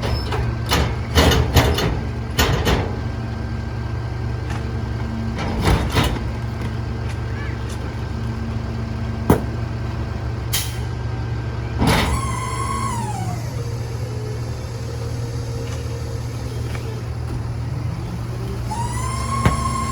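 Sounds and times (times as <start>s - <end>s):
diesel engine droning: 0.0s - 19.9s
mechanical whine: 11.7s - 19.9s.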